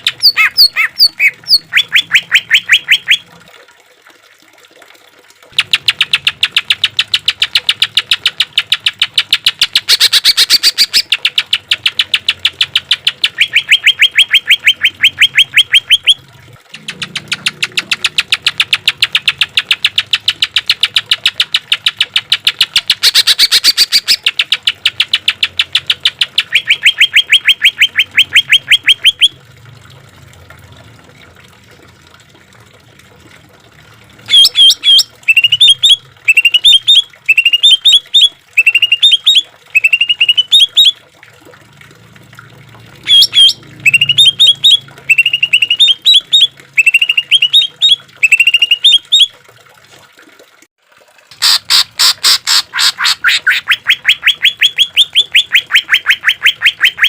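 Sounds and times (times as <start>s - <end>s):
bird song with whistled notes: 12.1s - 16.2s, 34.3s - 41.0s, 43.1s - 49.3s.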